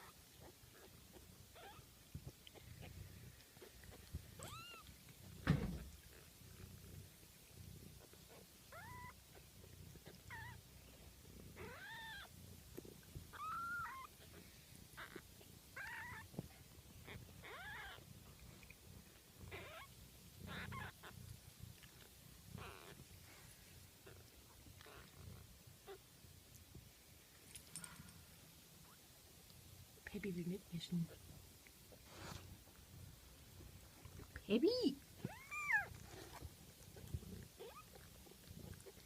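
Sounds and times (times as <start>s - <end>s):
soft thump: 5.4s - 5.9s
kittens mewing: 11.5s - 12.3s, 13.3s - 16.4s, 19.5s - 21.2s.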